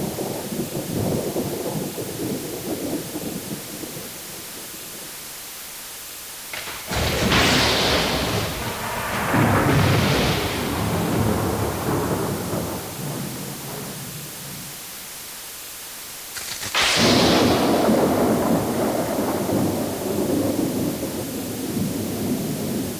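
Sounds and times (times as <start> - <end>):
thunder clap rolling: 0.0 - 5.1, 6.4 - 14.8, 16.4 - 22.9
rain hissing: 0.0 - 22.9.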